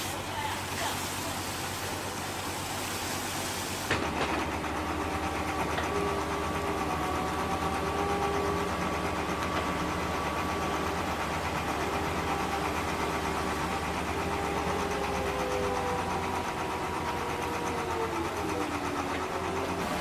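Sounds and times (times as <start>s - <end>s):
heavy equipment engine rumbling: 0.0s - 20.0s.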